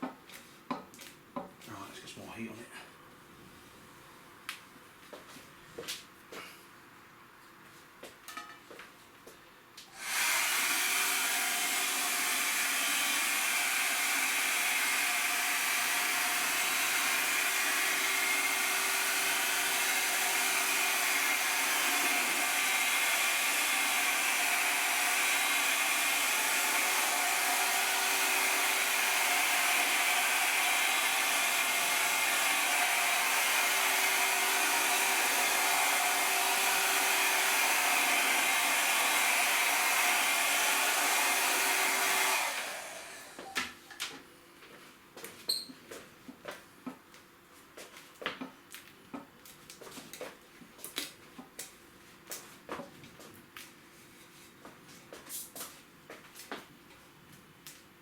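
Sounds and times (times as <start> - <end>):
hot-air blower running: 9.9 - 43.8.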